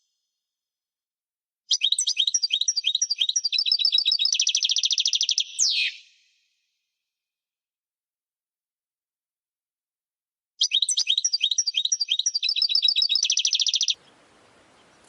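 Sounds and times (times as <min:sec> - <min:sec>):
goldfinch singing: 0:10.6 - 0:15.0.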